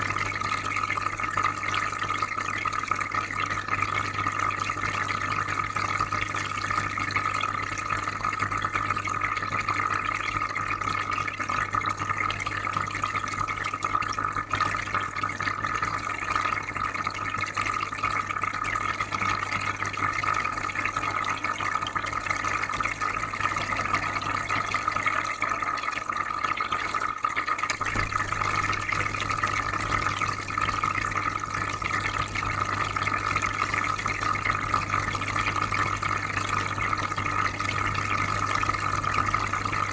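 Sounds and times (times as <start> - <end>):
water trickling and bubbling: 0.0 - 39.9
low electric hum: 27.7 - 39.9.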